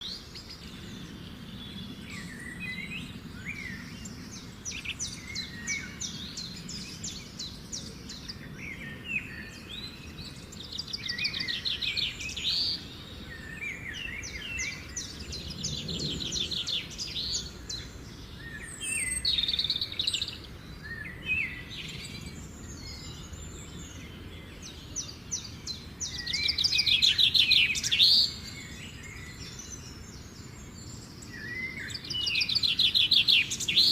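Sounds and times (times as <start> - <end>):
songbirds trilling and whistling: 0.0 - 33.9.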